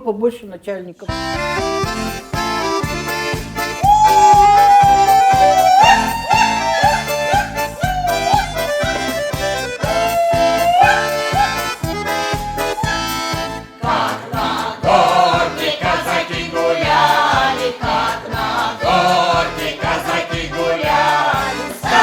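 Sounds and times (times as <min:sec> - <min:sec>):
accordion playing folk tune: 0:01.1 - 0:22.0.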